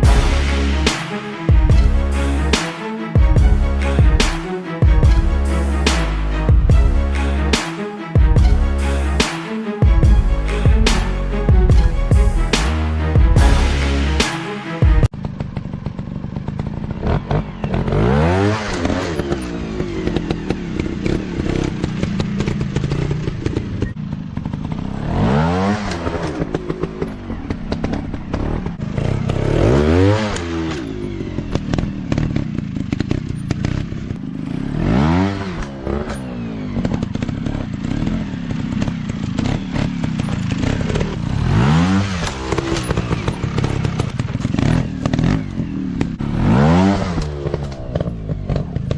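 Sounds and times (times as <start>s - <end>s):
dirt bike engine revving: 15.0s - 48.9s.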